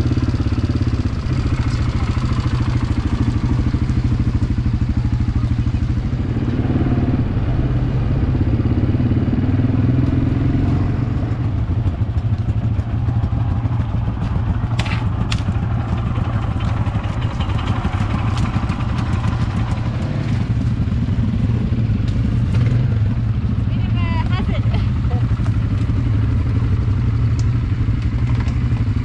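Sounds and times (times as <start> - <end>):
quad bike engine running: 0.0 - 29.0
sharp knocks and rattles: 11.8 - 22.8.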